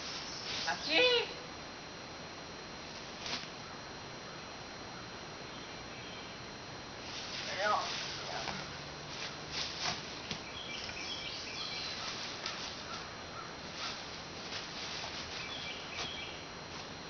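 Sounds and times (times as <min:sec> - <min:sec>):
bird chirping: 0:10.2 - 0:12.2, 0:15.4 - 0:16.5.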